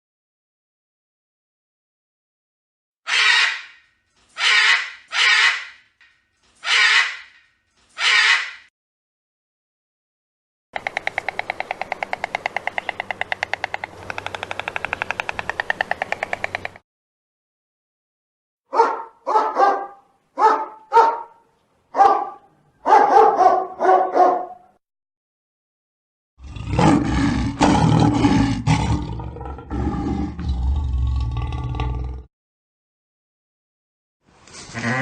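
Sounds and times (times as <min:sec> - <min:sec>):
dog barking: 0:18.7 - 0:24.7
low rough growl: 0:26.4 - 0:32.3.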